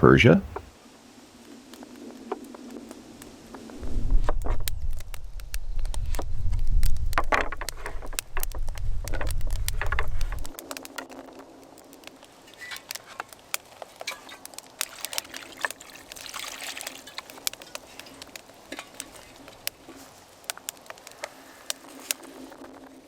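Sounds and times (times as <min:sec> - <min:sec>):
small clicks and knocks: 0:05.9 - 0:11.3
water trickling over vegetables: 0:14.0 - 0:20.2.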